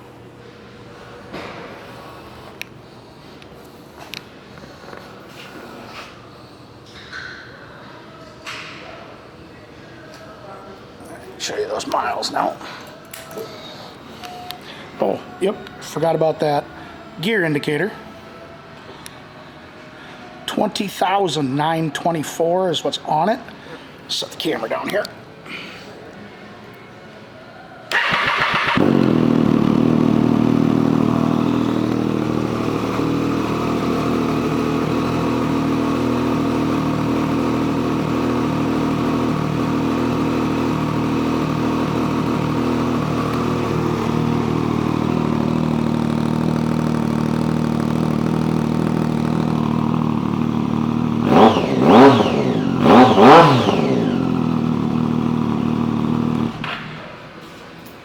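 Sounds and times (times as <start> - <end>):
engine revving: 27.9 - 56.9
motorcycle engine starting and idling: 27.9 - 57.4.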